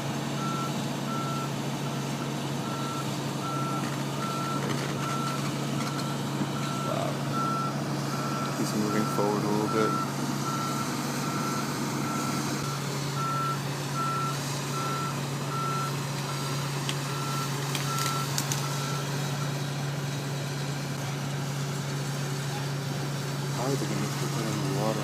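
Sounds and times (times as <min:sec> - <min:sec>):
diesel engine droning: 0:00.0 - 0:25.0
crane warning alarm beeps: 0:00.4 - 0:01.6, 0:02.6 - 0:19.2.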